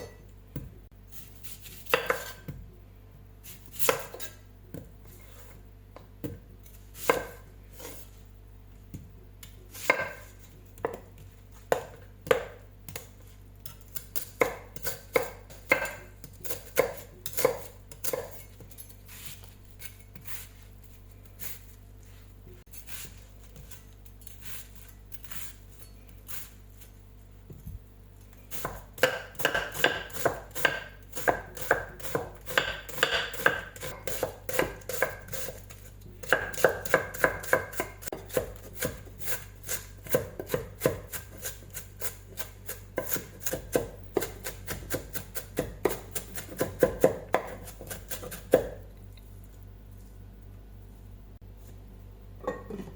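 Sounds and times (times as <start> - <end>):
knife chopping on cutting board: 1.9 - 2.6, 9.8 - 13.1, 14.0 - 18.4, 28.5 - 48.8.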